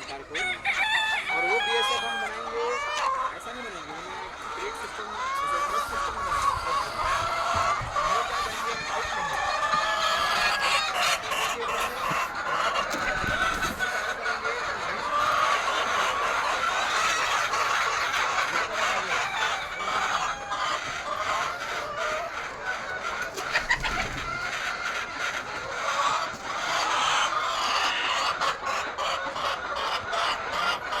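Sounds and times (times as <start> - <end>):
hens clucking: 0.0 - 31.0.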